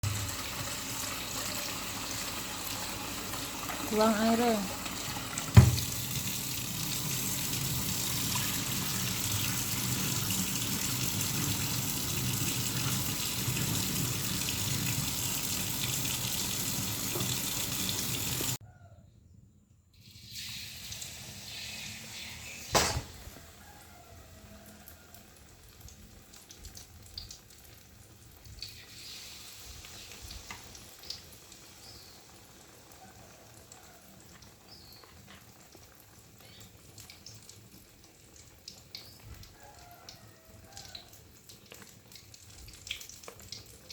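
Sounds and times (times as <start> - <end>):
water pouring into a pot: 0.0 - 18.6, 20.0 - 43.9
sharp knock: 5.6 - 5.9, 22.8 - 23.2.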